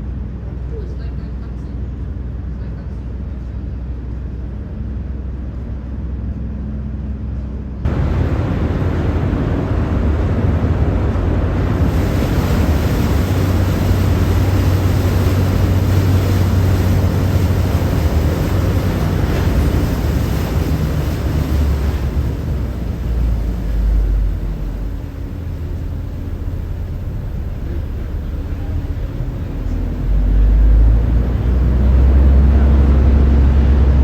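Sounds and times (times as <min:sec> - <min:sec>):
low engine-like rumble: 0:00.0 - 0:34.0
wind noise on microphone: 0:07.9 - 0:25.2.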